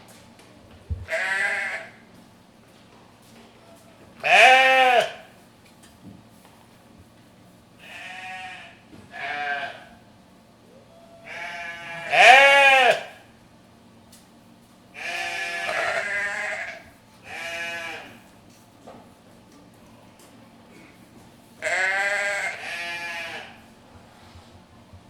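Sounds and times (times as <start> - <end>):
goats bleating: 1.1 - 2.0, 4.2 - 5.2, 7.8 - 9.9, 11.2 - 13.1, 15.0 - 18.2, 21.6 - 23.6.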